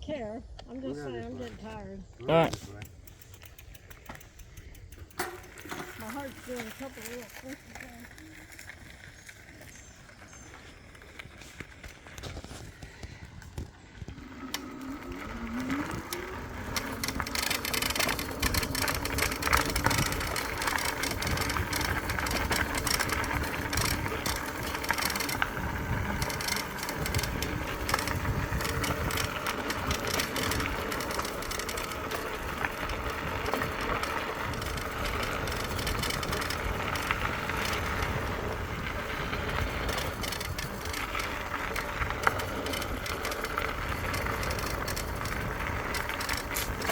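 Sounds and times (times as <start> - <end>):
tyre noise on dirt trail: 0.0 - 46.9
electric motor whine: 13.5 - 46.9.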